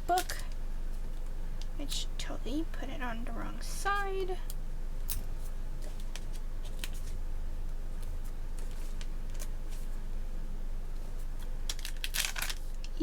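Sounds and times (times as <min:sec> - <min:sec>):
steady low hum: 0:00.0 - 0:13.0
paper rustling: 0:05.4 - 0:07.2, 0:07.9 - 0:10.0, 0:10.9 - 0:13.0.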